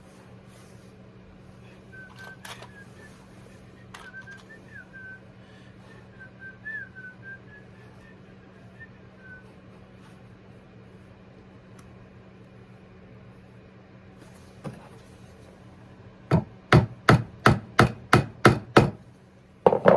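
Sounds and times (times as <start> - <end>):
steady low hum: 0.0 - 19.9
person whistling a tune: 1.9 - 9.5.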